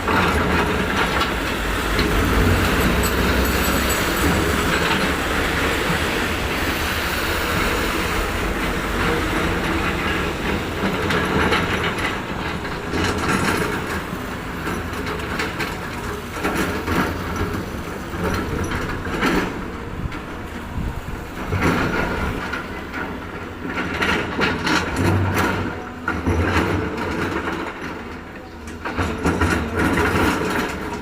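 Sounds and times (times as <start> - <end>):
heavy machinery rumbling: 0.0 - 31.0
metallic clanks and knocks: 9.0 - 20.3.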